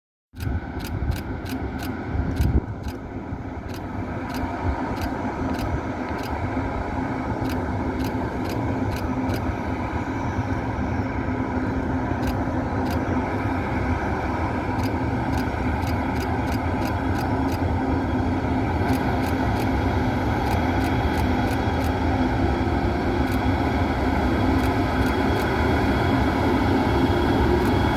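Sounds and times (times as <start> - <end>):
sharp clicks: 0.4 - 3.0, 3.7 - 6.4, 7.4 - 9.5, 12.2 - 13.0, 14.8 - 17.6, 20.4 - 22.0, 24.6 - 25.5, 27.6 - 27.8
train low rumble: 0.4 - 27.9.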